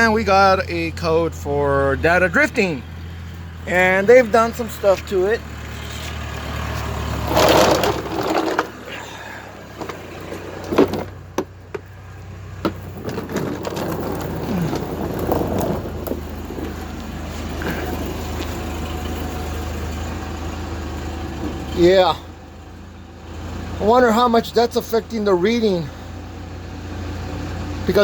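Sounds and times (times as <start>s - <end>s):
diesel engine idling: 0.0s - 28.0s
rustling: 5.6s - 20.1s.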